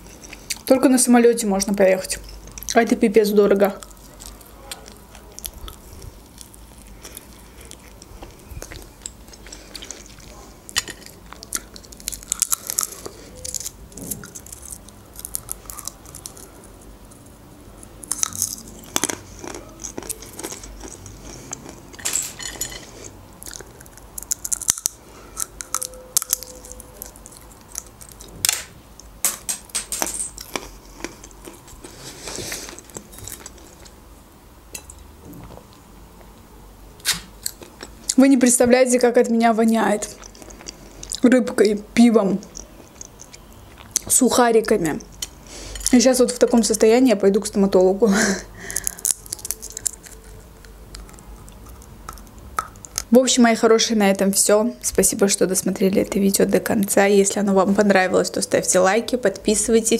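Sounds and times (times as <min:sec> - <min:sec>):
chewing with sharp crunches: 0:00.0 - 0:00.7, 0:02.1 - 0:02.9, 0:03.6 - 0:28.4, 0:30.3 - 0:34.0, 0:37.0 - 0:38.3, 0:40.0 - 0:41.3, 0:42.4 - 0:44.2, 0:48.6 - 0:53.1.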